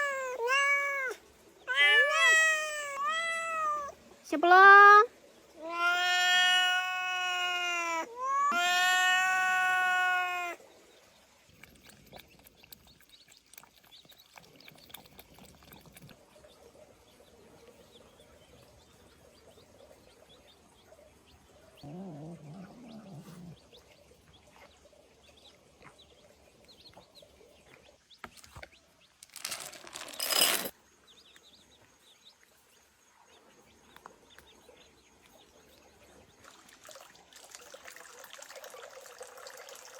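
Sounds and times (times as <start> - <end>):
cat meowing: 0.0 - 4.0, 5.6 - 10.6.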